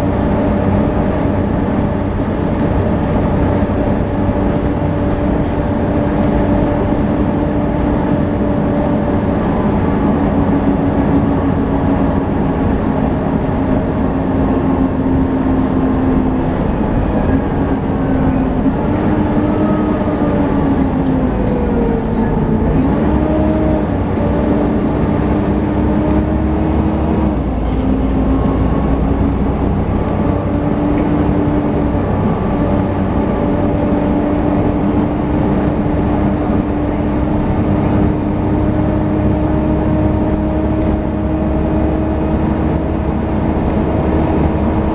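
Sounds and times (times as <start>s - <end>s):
bus driveline whine: 0.0s - 44.9s
steady low rumble: 0.0s - 44.9s.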